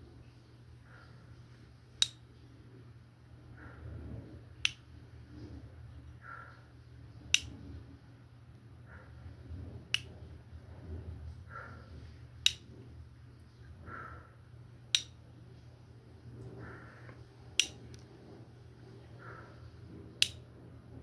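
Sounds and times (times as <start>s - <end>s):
low steady hum: 0.0s - 21.0s
sharp snaps: 2.0s - 2.3s, 4.6s - 5.0s, 7.2s - 7.7s, 9.9s - 10.2s, 12.4s - 12.8s, 14.9s - 15.2s, 16.7s - 18.1s, 20.2s - 20.6s.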